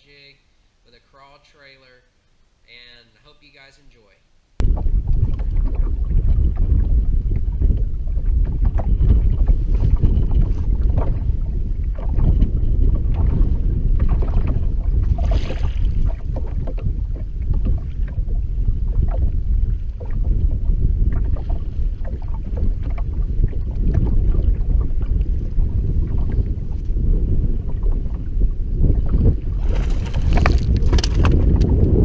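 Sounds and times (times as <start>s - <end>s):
wind buffeting microphone: 4.6s - 32.0s.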